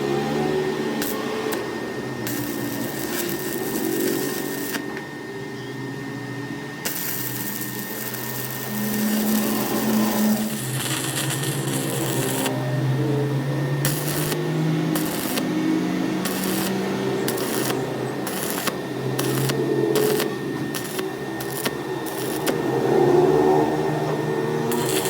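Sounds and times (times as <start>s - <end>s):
electric machine motor running: 0.0s - 25.0s.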